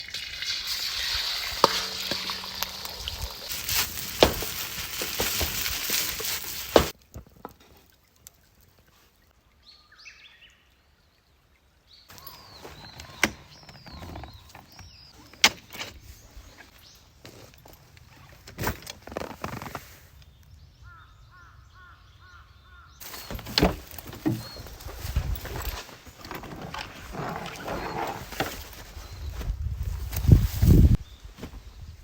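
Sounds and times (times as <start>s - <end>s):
crackling hiss: 0.0s - 7.0s
birds chirping: 12.1s - 18.4s, 20.3s - 29.5s.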